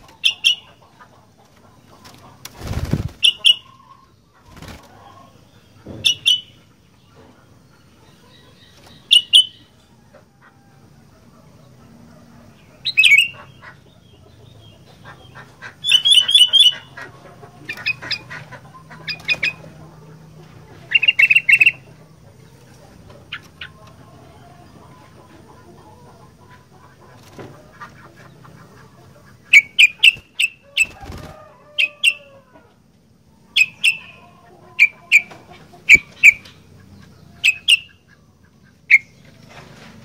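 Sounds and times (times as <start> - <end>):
bulbul singing: 0.0 - 0.9, 3.2 - 4.0, 5.7 - 6.6, 8.3 - 9.8, 20.8 - 22.0, 29.4 - 31.0, 33.5 - 39.2.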